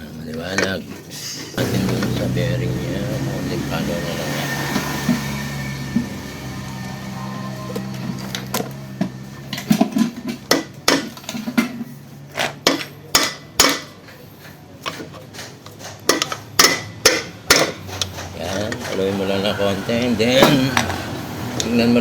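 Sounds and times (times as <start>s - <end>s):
hammer tapping on metal: 15.7s - 18.4s.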